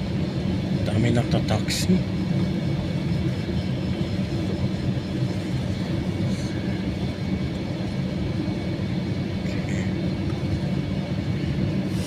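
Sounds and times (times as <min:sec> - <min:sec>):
jet engines taxiing inside cabin: 0:00.0 - 0:12.0.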